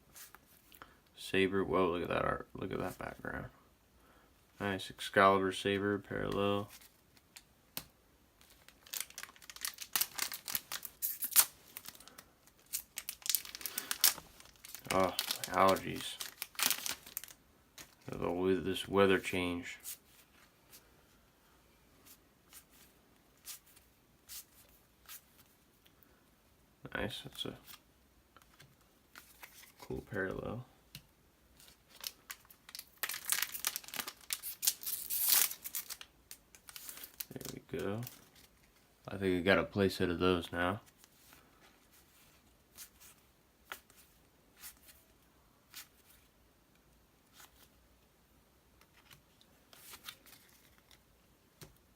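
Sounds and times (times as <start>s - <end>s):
foil wrapper tearing and crinkling: 8.5s - 17.4s, 31.9s - 38.5s.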